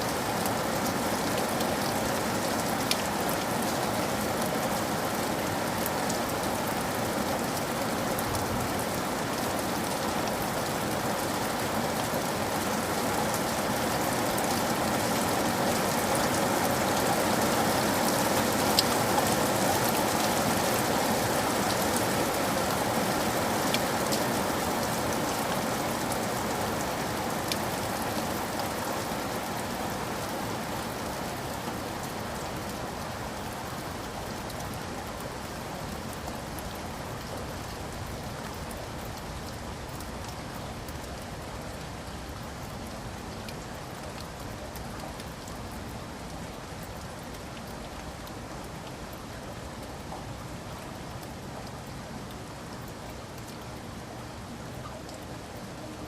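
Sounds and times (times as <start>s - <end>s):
steady rain falling: 0.0s - 56.0s
raindrop ticks: 0.1s - 3.8s, 33.4s - 56.0s.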